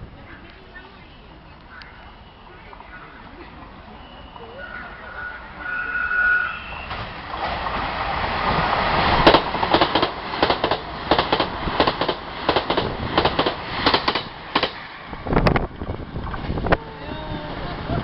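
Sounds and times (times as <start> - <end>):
train rushing past: 1.0 - 18.0
wheels clacking over rail joints: 6.9 - 16.8.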